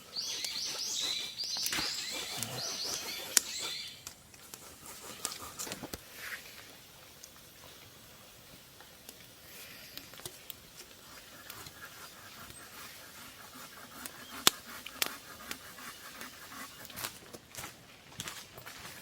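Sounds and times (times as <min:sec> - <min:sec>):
faint hiss: 0:03.5 - 0:17.8
wood fire crackling and popping: 0:06.6 - 0:11.8.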